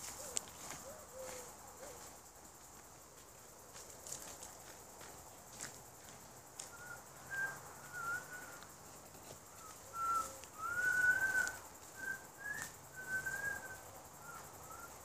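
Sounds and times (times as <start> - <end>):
person whistling a slow tune: 6.8 - 8.6, 9.9 - 14.9.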